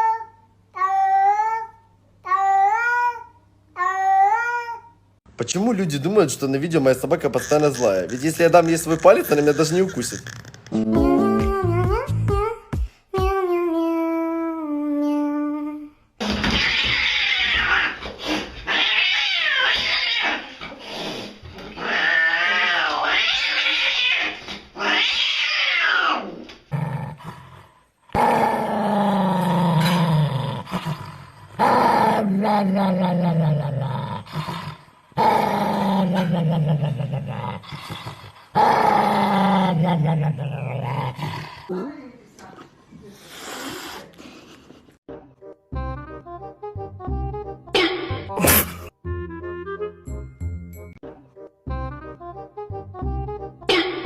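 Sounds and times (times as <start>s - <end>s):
cat hissing and yowling: 16.2s - 26.4s, 43.2s - 44.2s
drawn-out growls: 26.0s - 41.7s.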